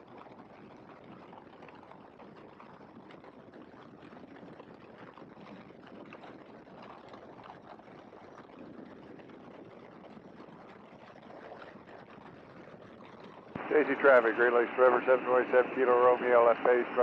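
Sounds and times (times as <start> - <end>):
airplane engine noise: 13.5 - 17.0.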